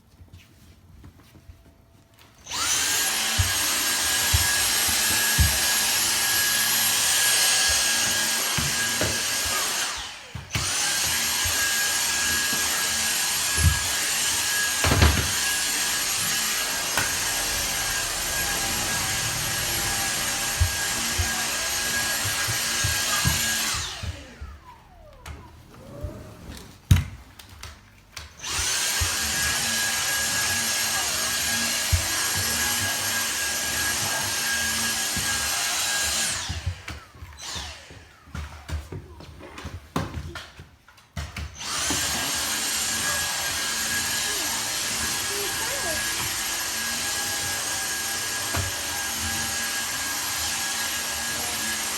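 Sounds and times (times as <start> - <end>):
vacuum cleaner motor whining: 2.2 - 40.3, 41.4 - 51.9.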